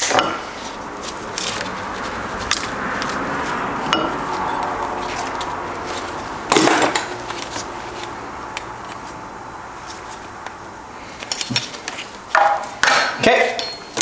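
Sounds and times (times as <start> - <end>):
metal parts clattering: 3.9 - 8.1, 11.2 - 14.0.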